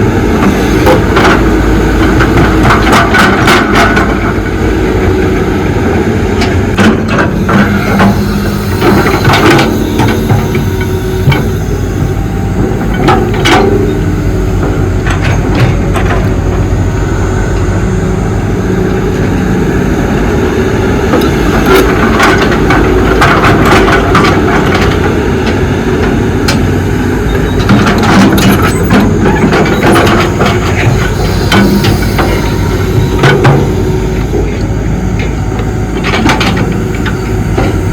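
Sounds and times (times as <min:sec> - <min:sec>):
excavator diesel engine running: 0:00.0 - 0:37.9
knocks and clanks of digging: 0:00.4 - 0:04.4, 0:06.4 - 0:14.0, 0:14.6 - 0:16.6, 0:21.2 - 0:26.7, 0:27.3 - 0:37.8.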